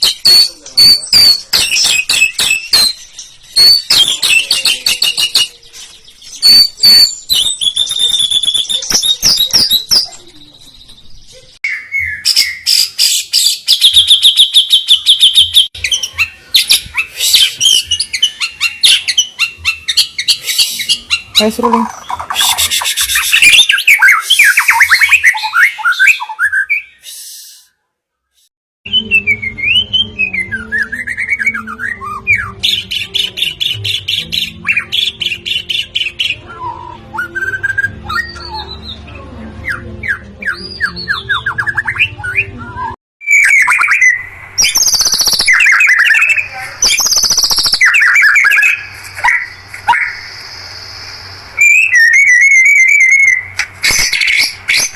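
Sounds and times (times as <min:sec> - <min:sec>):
songbird whistling and trilling: 0:00.0 - 0:27.7, 0:28.9 - 0:39.0, 0:39.6 - 0:51.0, 0:51.6 - 0:54.9.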